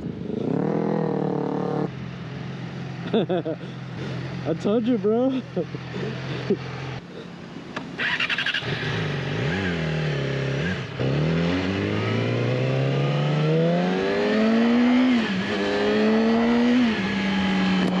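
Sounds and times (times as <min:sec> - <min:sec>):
motorcycle engine revving: 0:00.0 - 0:04.8, 0:07.8 - 0:18.0.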